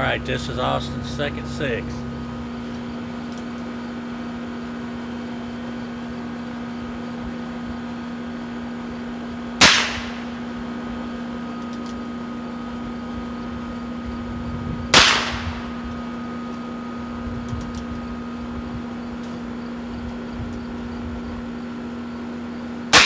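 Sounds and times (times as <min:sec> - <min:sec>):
revolver shots: 0:09.6 - 0:10.4, 0:15.0 - 0:15.8.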